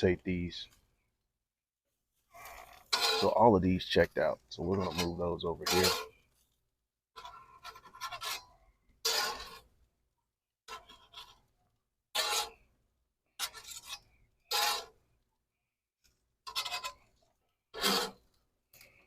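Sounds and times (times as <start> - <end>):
metal utensil scraping grill grate: 2.3 - 6.2, 7.2 - 9.7, 12.1 - 12.6, 13.4 - 15.0, 16.4 - 19.0.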